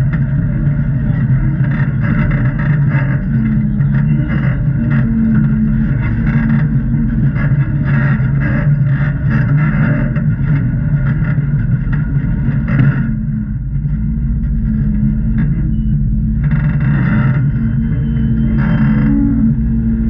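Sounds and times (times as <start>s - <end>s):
engine running at low revs: 0.0s - 20.0s.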